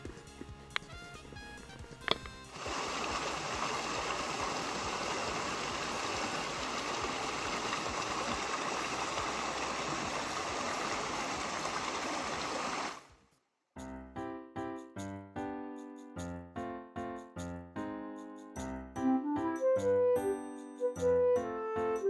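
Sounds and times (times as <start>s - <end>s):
small stream flowing: 2.5s - 13.1s.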